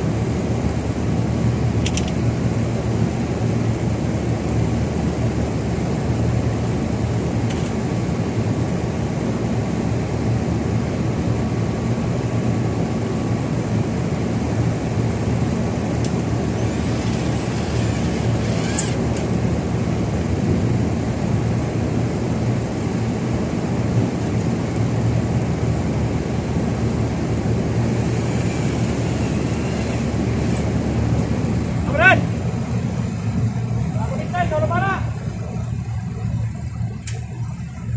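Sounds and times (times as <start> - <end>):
reaper engine droning: 11.7 - 37.9
short high squeak: 17.0 - 19.0.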